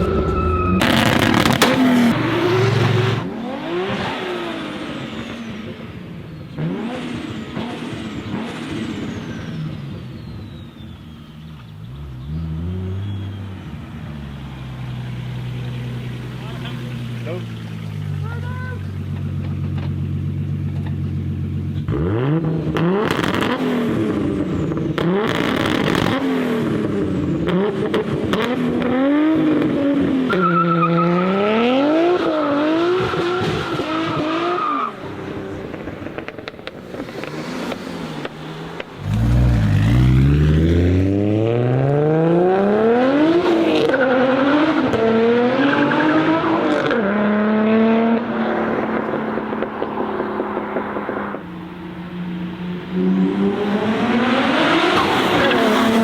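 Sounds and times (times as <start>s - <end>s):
tyre squeal: 0.0s - 2.2s
car engine revving hard: 0.8s - 5.8s, 6.5s - 9.9s, 21.8s - 51.4s, 52.7s - 56.0s.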